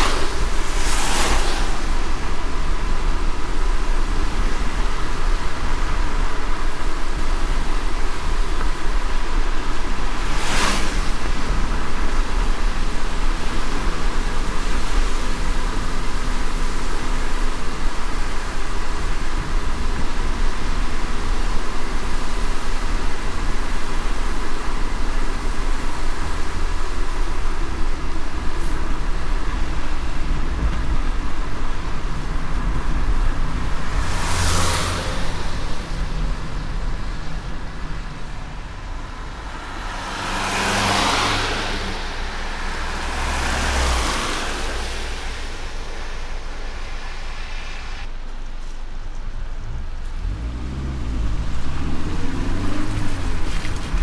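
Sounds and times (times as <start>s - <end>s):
passing whooshes: 0.0s - 5.2s, 28.5s - 48.6s
road rumble and tyre hiss: 0.0s - 54.0s.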